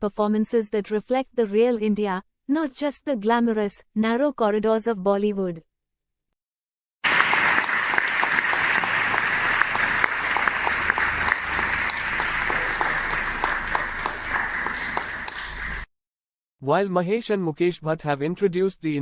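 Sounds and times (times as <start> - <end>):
audience applause: 7.0 - 15.9.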